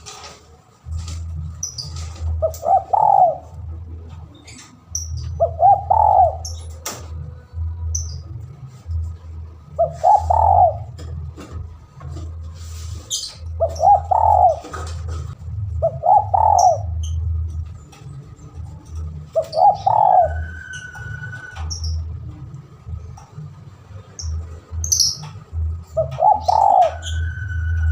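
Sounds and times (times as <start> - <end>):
steady low rumble: 0.8 - 20.4
dove cooing: 1.8 - 3.8, 5.3 - 6.8, 9.7 - 11.4, 13.5 - 17.2, 19.3 - 21.9, 25.8 - 27.9.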